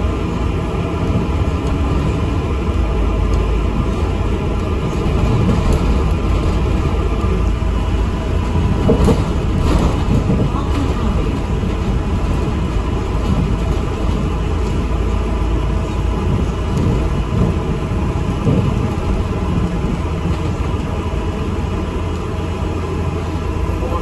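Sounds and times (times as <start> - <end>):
bus engine rumbling: 0.0 - 24.0.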